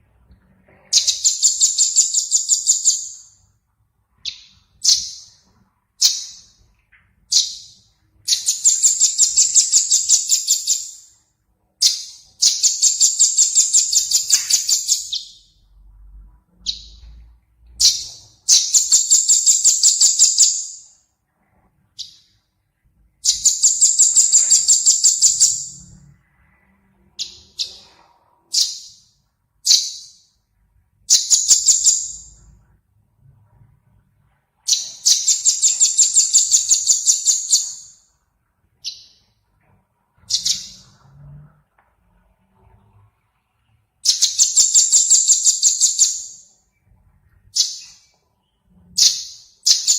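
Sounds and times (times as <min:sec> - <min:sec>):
high bird calls: 0:00.7 - 0:03.5, 0:04.1 - 0:11.2, 0:11.8 - 0:15.8, 0:23.1 - 0:30.4, 0:31.1 - 0:32.6, 0:34.6 - 0:38.1, 0:40.2 - 0:41.1, 0:44.0 - 0:49.9
songbird trilling: 0:00.9 - 0:03.4, 0:04.2 - 0:05.4, 0:07.3 - 0:11.1, 0:11.8 - 0:15.4, 0:40.3 - 0:40.8.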